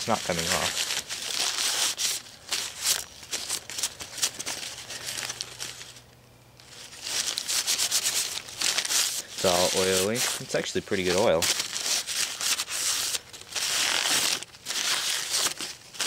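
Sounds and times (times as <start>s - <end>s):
hand scrubbing metal parts: 7.4s - 11.4s.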